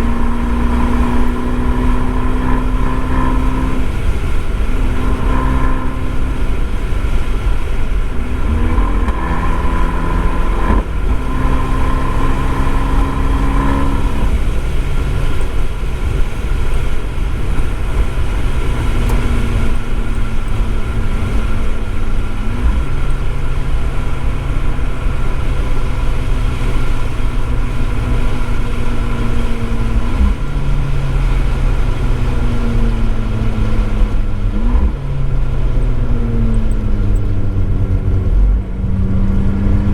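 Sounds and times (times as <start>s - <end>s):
car engine accelerating: 0.0s - 39.9s
road noise: 0.0s - 39.9s.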